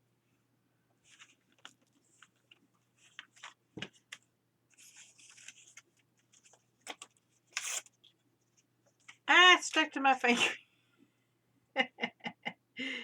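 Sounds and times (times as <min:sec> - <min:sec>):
paper rustling and crinkling: 0:01.0 - 0:09.2.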